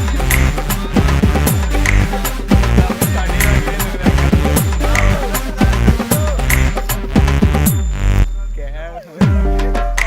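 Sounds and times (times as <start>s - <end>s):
electronic music with deep bass: 0.0s - 8.5s.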